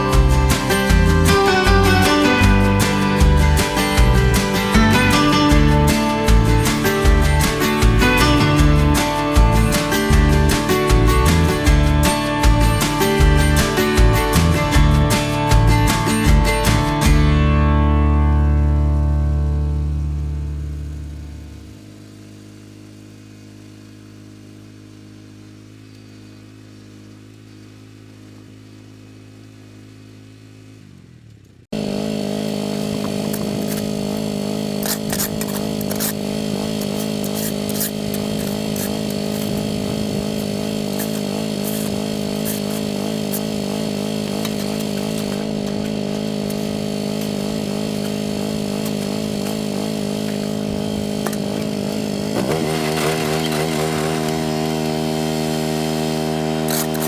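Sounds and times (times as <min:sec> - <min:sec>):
loud engine running: 0:00.0 - 0:57.0
small engine running: 0:00.0 - 0:57.0
sharp ticks: 0:32.5 - 0:52.3.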